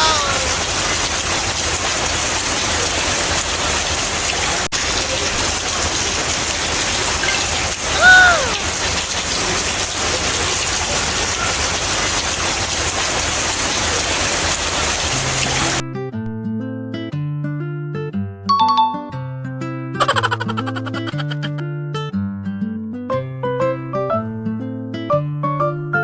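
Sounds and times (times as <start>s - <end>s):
high voice call: 0.0s - 0.5s
rain falling: 0.0s - 15.8s.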